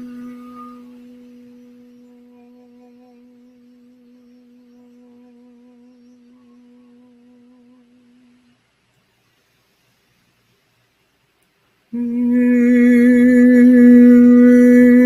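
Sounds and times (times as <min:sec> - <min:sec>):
singing bowl ringing: 0:00.0 - 0:04.1.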